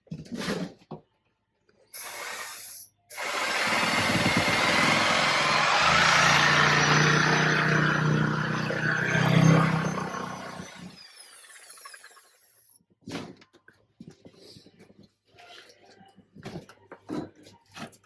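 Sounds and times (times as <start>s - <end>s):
power tool winding down: 2.0s - 12.8s.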